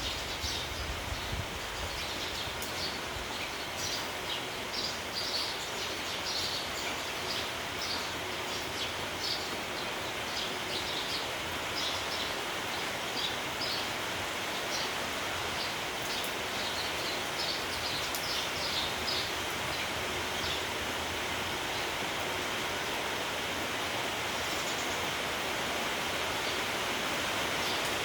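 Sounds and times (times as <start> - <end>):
sparrows chirping: 0.0 - 20.7, 27.4 - 28.0
rain hissing: 0.0 - 28.0.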